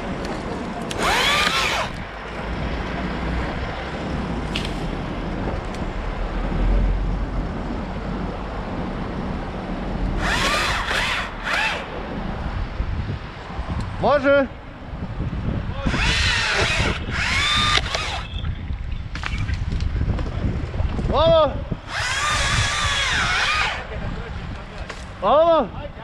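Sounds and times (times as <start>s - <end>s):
wind noise: 0.0s - 26.0s
battery chainsaw revving: 0.9s - 2.0s, 10.2s - 11.9s, 15.9s - 18.3s, 21.9s - 24.0s.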